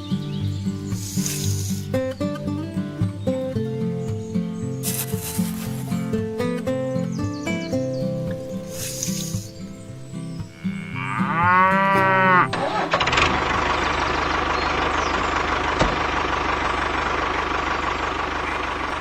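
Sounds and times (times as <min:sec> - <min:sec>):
engine running: 0:00.0 - 0:06.9, 0:11.9 - 0:19.0
background music: 0:00.0 - 0:13.1
cow mooing: 0:10.5 - 0:12.9.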